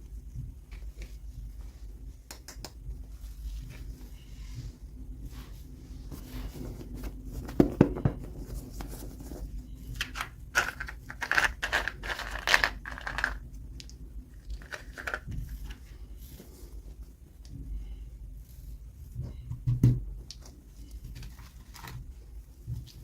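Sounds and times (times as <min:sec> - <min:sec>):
packaging crinkling and tearing: 0:10.0 - 0:13.4.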